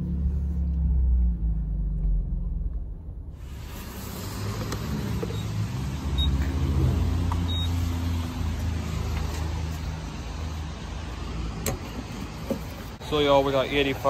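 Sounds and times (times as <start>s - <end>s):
vehicle engine humming: 0.0s - 14.0s
faint high beeps: 7.5s - 7.8s.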